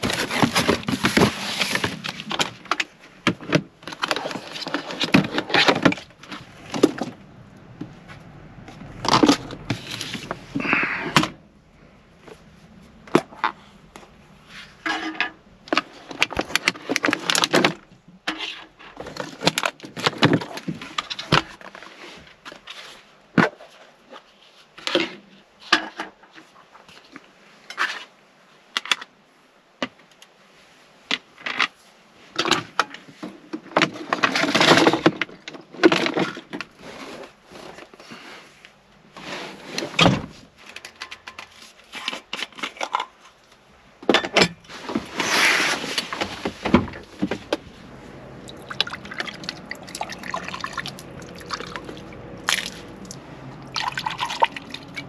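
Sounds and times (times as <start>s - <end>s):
objects being handled: 0.0s - 11.4s, 32.4s - 55.0s.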